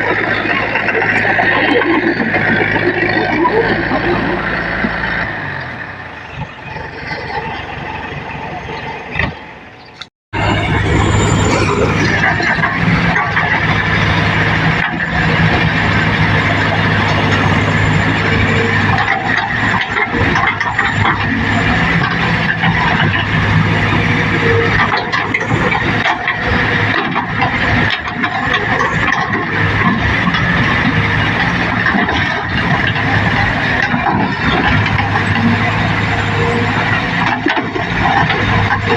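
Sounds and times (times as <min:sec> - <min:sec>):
diesel engine of heavy machinery: 0:00.0 - 0:38.9
mechanical knocks and clatter: 0:24.7 - 0:38.9.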